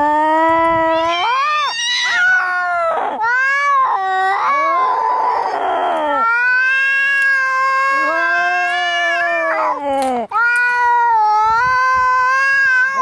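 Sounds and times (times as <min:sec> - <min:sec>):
cat yowling harshly: 0:00.7 - 0:09.8, 0:10.4 - 0:13.0.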